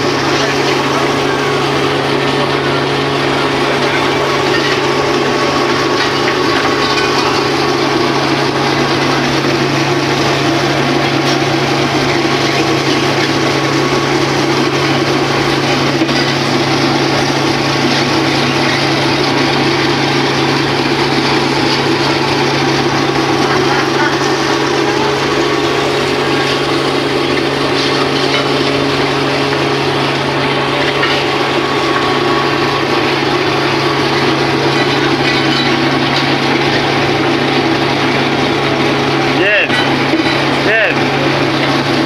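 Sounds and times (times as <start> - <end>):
ship engine humming: 0.0 - 42.0.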